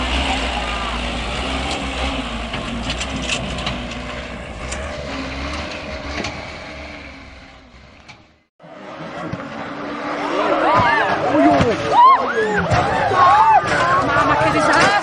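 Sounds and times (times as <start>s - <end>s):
heavy vehicle engine rumbling: 0.0s - 15.0s
clanks and knocks: 1.5s - 8.5s.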